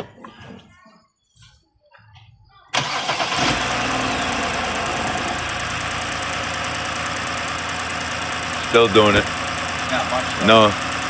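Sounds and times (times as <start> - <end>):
car engine idling roughly: 2.8 - 11.0.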